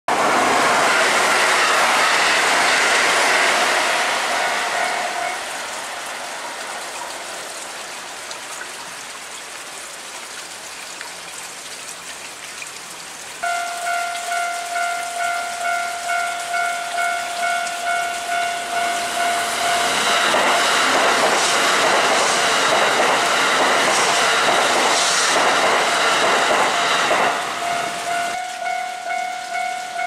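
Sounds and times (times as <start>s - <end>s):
express train passing: 0.1s - 8.2s, 13.4s - 30.0s
heavy rain hissing: 0.1s - 30.0s
level-crossing warning bell: 4.7s - 5.6s, 13.4s - 21.4s, 25.8s - 30.0s.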